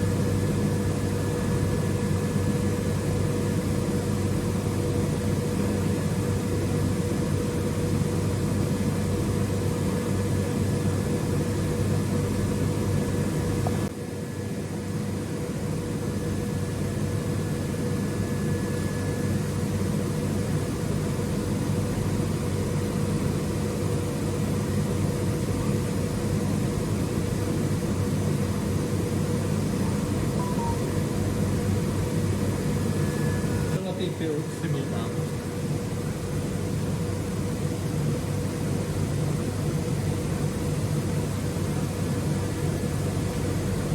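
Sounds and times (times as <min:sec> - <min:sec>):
machine mechanical hum with tones: 0:00.0 - 0:33.8.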